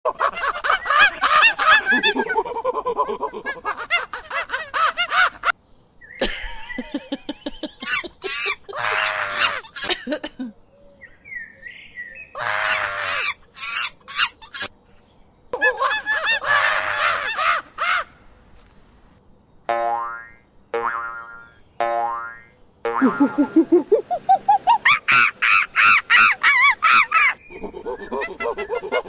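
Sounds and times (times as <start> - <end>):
animal harsh wavering calls: 23.0 - 29.0.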